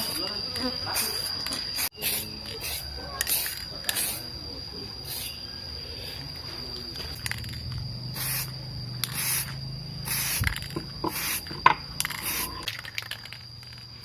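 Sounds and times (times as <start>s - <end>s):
spray can hissing: 0.9s - 4.3s, 5.0s - 5.4s, 7.2s - 13.8s
spray can clicks: 1.4s - 4.2s, 9.0s - 9.5s.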